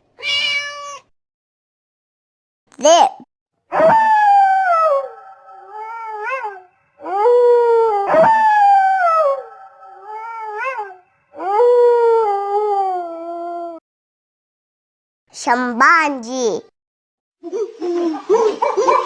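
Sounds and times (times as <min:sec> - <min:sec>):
wolves howling: 0:03.7 - 0:12.3.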